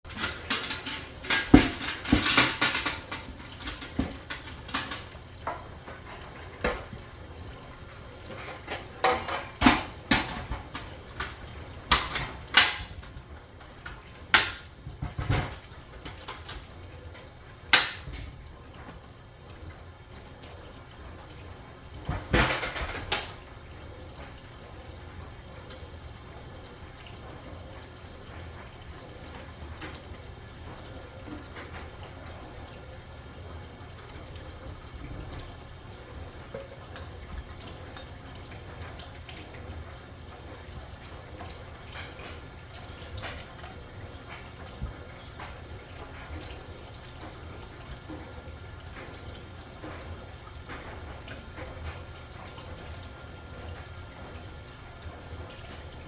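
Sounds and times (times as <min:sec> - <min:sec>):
clattering and knocking: 0:00.1 - 0:07.0.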